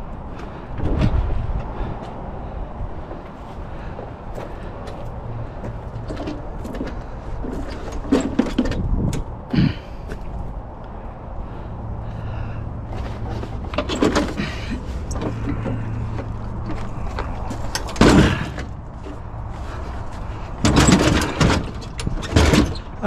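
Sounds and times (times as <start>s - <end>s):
scrap metal knocks and clanks: 5.5s - 10.2s, 12.9s - 23.0s.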